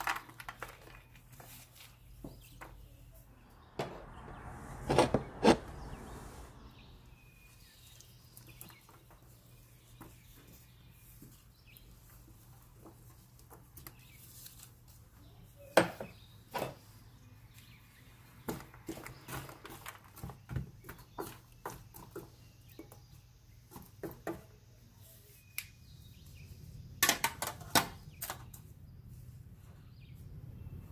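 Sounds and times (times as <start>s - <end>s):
steady low hum: 3.2s - 7.6s.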